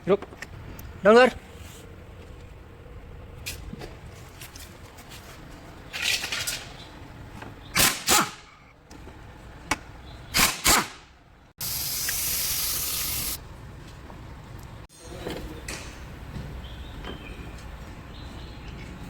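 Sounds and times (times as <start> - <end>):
hissing spray bursts: 11.6 - 13.4.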